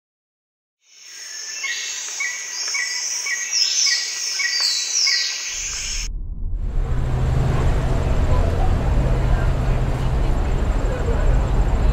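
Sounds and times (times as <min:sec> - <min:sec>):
bird calls and chirps: 0:00.9 - 0:06.1
car rumble from inside: 0:06.1 - 0:11.9.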